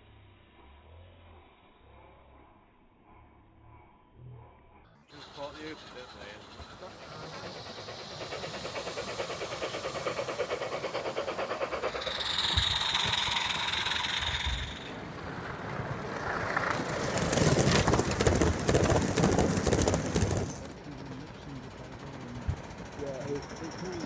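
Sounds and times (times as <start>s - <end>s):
model locomotive rhythmic beat: 5.1s - 24.0s
steady high tone: 11.8s - 15.5s.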